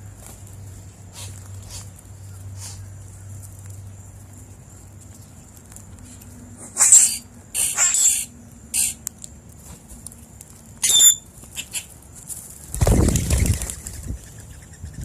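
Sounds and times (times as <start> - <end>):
high bird chirps: 6.8 - 9.0, 10.8 - 11.9
bird wings flapping: 12.5 - 15.0.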